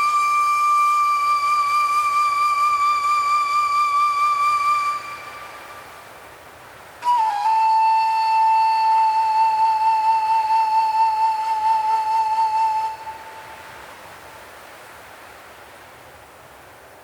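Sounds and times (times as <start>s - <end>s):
long flute note with vibrato: 0.0s - 6.1s, 7.0s - 13.8s
hiss of wind: 0.0s - 17.0s.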